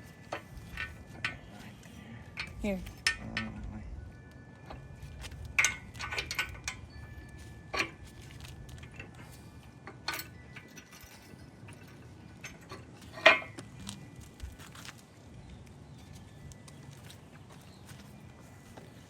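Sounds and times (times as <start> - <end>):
metal tools clanking: 0.0 - 1.6, 4.6 - 14.7.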